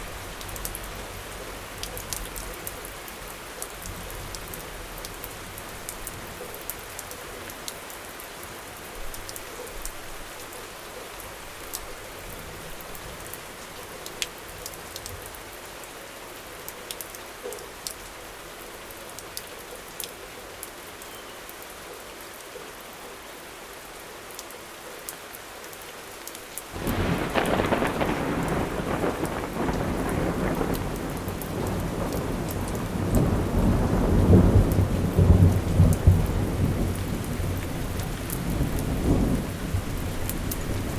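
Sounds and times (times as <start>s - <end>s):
steady rain falling: 0.0s - 40.9s
thunderclap and rumble: 26.8s - 40.9s.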